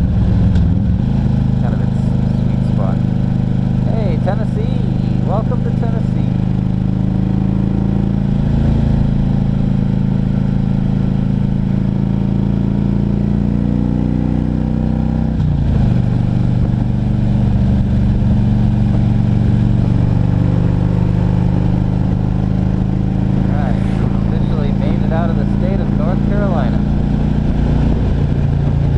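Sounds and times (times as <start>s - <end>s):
motorcycle engine at cruising speed: 0.0s - 28.9s
wind rush: 22.6s - 28.9s.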